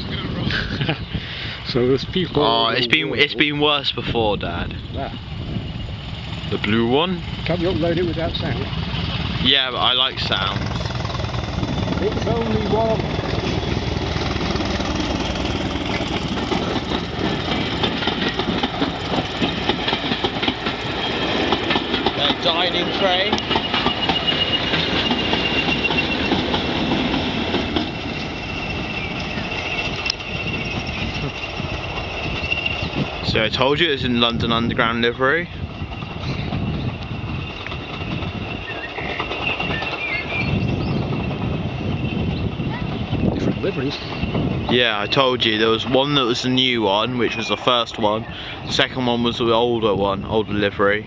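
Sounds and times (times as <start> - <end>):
steady low rumble: 0.0 - 38.8
diesel locomotive engine running: 0.0 - 51.0
train clattering: 0.0 - 51.0.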